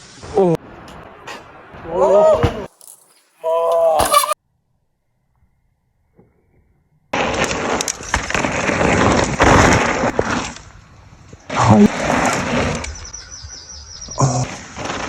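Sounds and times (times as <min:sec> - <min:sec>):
bike tyres rushing over dirt: 0:07.2 - 0:15.0.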